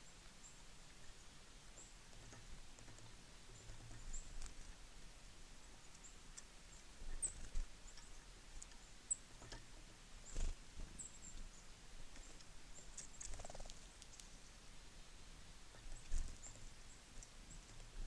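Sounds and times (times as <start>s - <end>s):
small birds chip calls: 0.0s - 18.0s.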